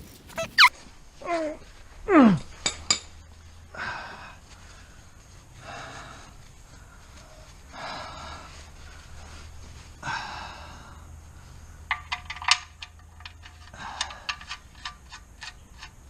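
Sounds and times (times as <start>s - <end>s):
soft rustling scrapes: 0.0s - 2.0s, 4.4s - 10.0s
short falling squeal: 0.3s - 0.7s
metal tools clinking: 11.9s - 16.0s.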